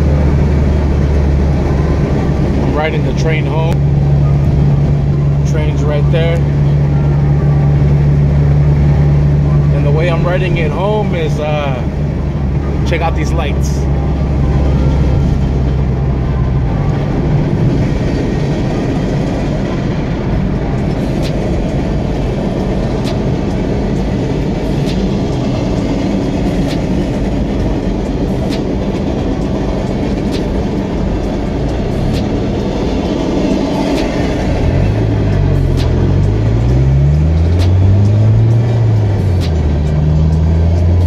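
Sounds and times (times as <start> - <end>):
car road noise: 0.0 - 41.0
freight train rumbling past: 0.0 - 41.0.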